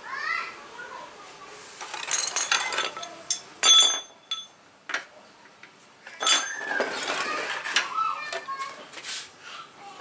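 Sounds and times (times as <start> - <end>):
hard objects clinking: 1.8 - 4.6, 6.1 - 8.4.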